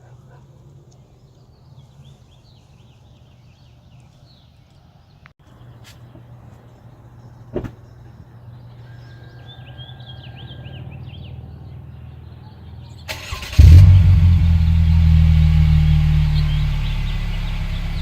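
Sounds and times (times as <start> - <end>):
car engine starting and running: 13.1 - 18.0.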